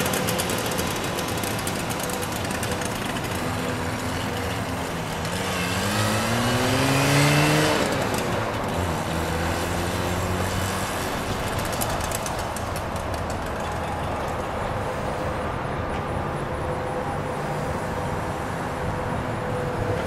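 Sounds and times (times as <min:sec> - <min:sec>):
small car engine driving past: 0:00.0 - 0:12.8.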